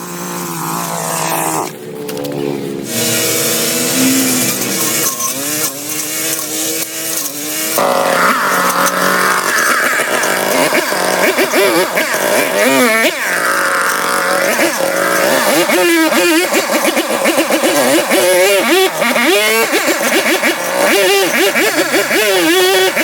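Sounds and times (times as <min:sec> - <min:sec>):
small petrol engine revving: 0:00.0 - 0:23.0.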